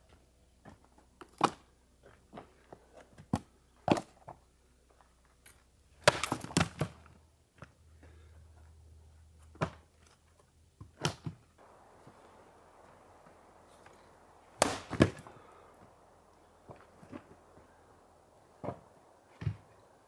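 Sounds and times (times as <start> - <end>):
firewood chopping strikes: 6.1 - 6.9, 11.6 - 19.9.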